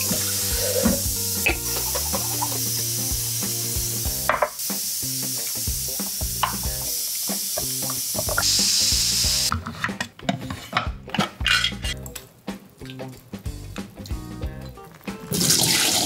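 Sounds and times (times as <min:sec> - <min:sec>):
food sizzling in a pan: 0:00.0 - 0:09.5.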